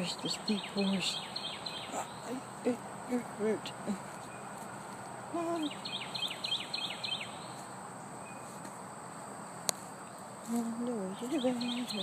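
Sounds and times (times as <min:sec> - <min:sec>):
low bird hoot: 0:00.0 - 0:07.7
insect hiss: 0:00.0 - 0:12.0
songbird chirping: 0:00.0 - 0:12.0.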